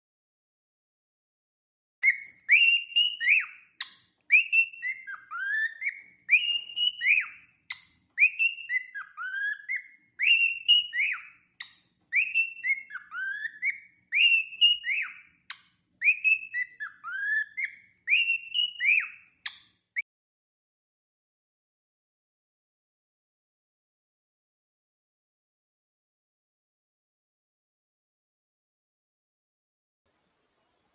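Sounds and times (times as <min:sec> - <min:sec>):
parrot whistling: 0:02.0 - 0:15.4, 0:16.0 - 0:19.4.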